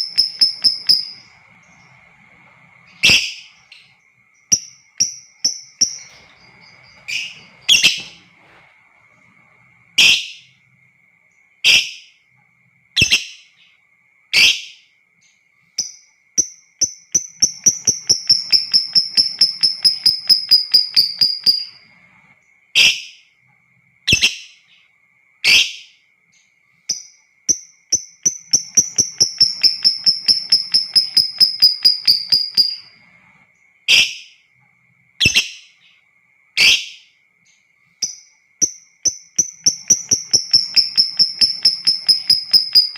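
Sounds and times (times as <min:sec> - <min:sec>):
lovebird chattering trill: 0:00.0 - 0:08.2, 0:15.8 - 0:21.8, 0:27.6 - 0:33.0, 0:38.0 - 0:42.9
faint steady high tone: 0:00.0 - 0:42.9.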